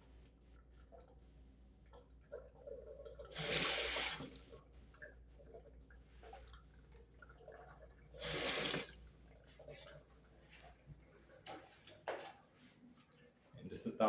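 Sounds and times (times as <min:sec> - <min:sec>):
water splashing into sink basin: 0:02.0 - 0:09.0.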